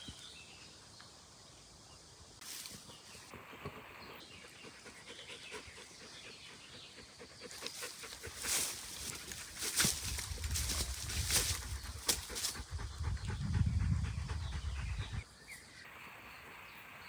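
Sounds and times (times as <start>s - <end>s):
dog panting: 4.3s - 9.6s, 11.6s - 15.2s
low rumble: 12.6s - 15.2s.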